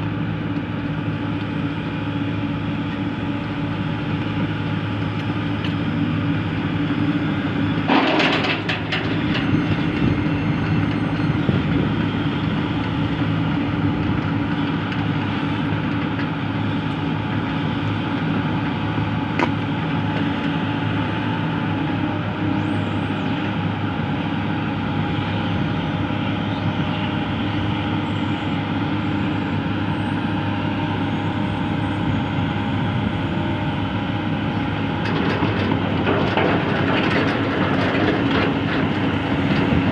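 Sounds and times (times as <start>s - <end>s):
excavator diesel engine running: 0.0s - 39.9s
loud metal clank: 7.9s - 9.6s.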